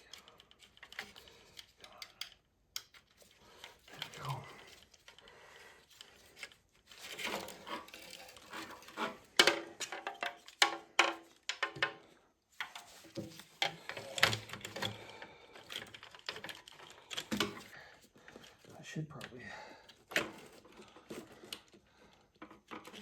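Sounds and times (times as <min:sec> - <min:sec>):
metal parts clicking and rattling: 0:00.0 - 0:05.2.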